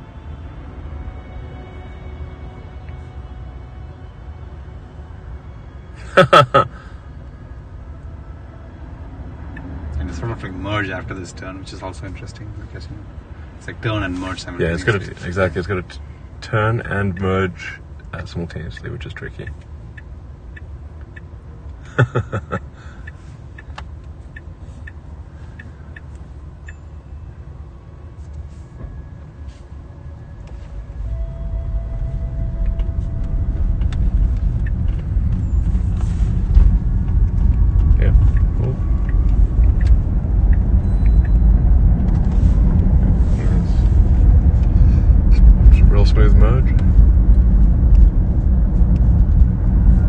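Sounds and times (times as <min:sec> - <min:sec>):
road rumble in car: 0:00.0 - 0:50.0
turn signal ticking: 0:09.4 - 0:10.7, 0:16.4 - 0:28.5, 0:30.4 - 0:43.2, 0:43.8 - 0:50.0.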